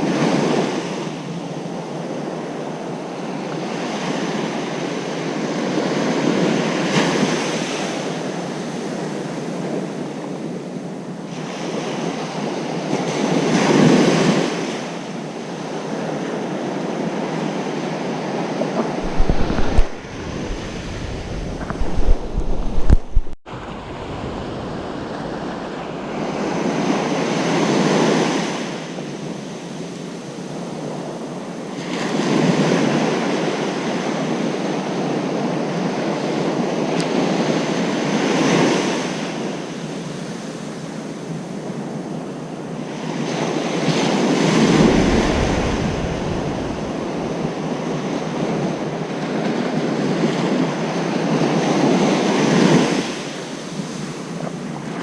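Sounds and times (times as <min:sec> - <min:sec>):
surf breaking on a beach: 0:00.0 - 0:55.0
wind buffeting microphone: 0:16.6 - 0:29.6, 0:41.4 - 0:55.0.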